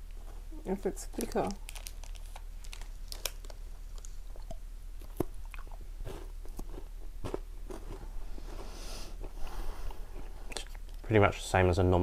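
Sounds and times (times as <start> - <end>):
soft chewing: 1.6 - 11.1.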